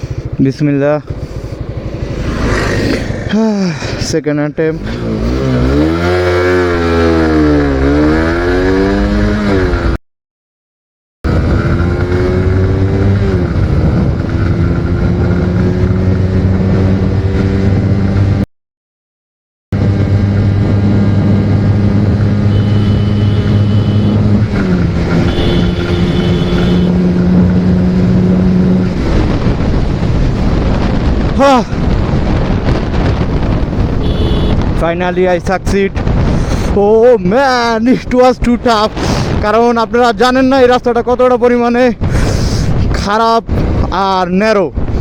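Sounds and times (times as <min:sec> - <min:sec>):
motorcycle engine accelerating hard: 0:00.0 - 0:03.6, 0:04.8 - 0:10.0, 0:11.3 - 0:18.4, 0:19.8 - 0:34.8.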